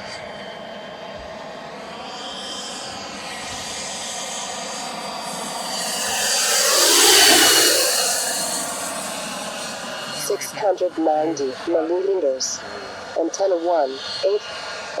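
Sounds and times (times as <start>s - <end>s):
turbine whine: 0.0s - 15.0s
helicopter rotor noise: 0.3s - 15.0s.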